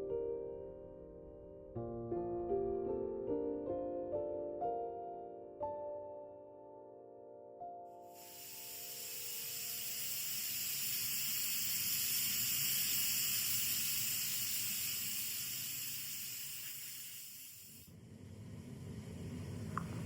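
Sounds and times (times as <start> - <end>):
high-pitched hiss: 8.0 - 17.9.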